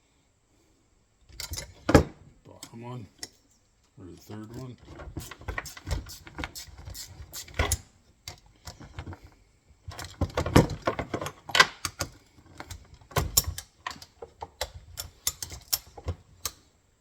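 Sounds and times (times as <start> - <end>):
wrench clinking on metal bolts: 1.3 - 3.5, 9.9 - 16.7.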